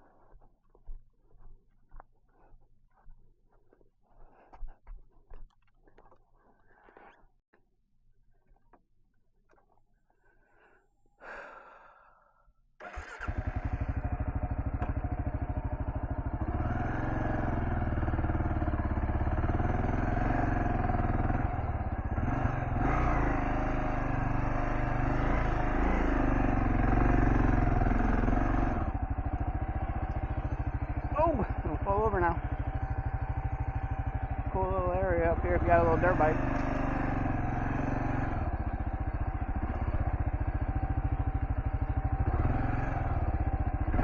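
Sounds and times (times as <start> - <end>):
motorcycle engine running: 12.8 - 44.0.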